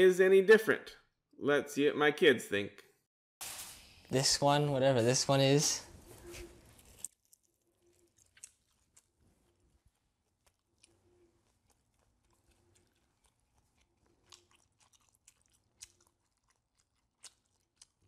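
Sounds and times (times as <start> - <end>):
faint chewing: 6.0 - 18.0.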